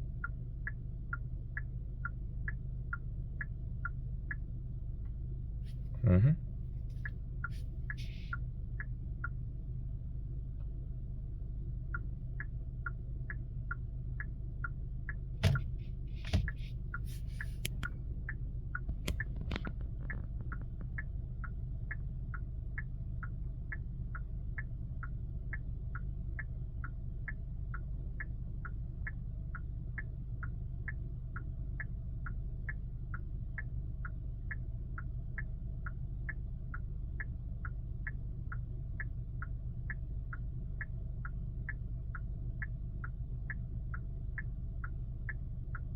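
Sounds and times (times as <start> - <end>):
turn signal ticking: 0.0 - 5.8, 6.9 - 45.9
low cabin hum: 15.4 - 18.1.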